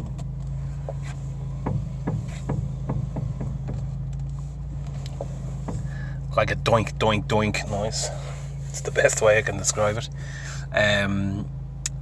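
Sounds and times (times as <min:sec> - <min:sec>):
dull suspension knocks: 0:00.0 - 0:06.7
engine hum: 0:00.0 - 0:12.0.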